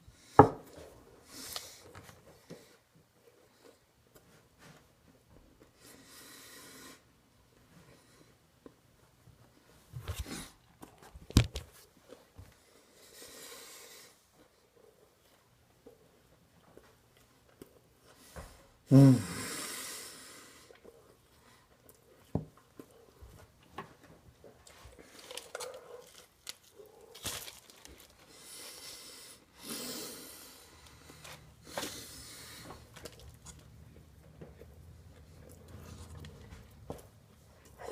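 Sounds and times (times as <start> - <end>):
heavy breathing through nose: 12.6 - 14.3, 18.1 - 20.8, 28.2 - 33.0
man grunting: 18.9 - 19.4
man chewing: 20.6 - 37.9.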